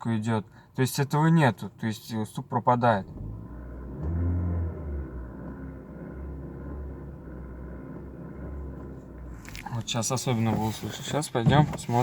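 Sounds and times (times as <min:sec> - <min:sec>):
car engine revving and idling: 0:02.8 - 0:12.0.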